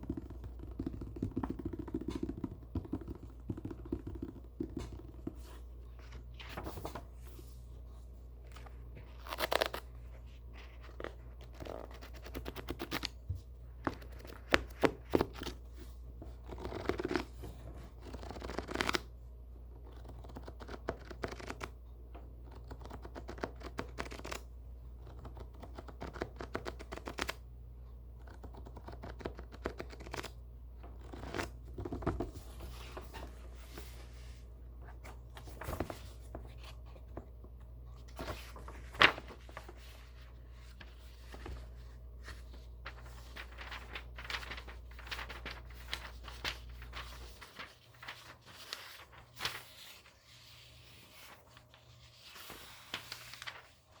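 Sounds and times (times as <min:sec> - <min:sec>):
book pages turning: 0:00.0 - 0:19.2, 0:19.8 - 0:27.4, 0:28.2 - 0:54.0
pages flicking rapidly: 0:42.8 - 0:49.8.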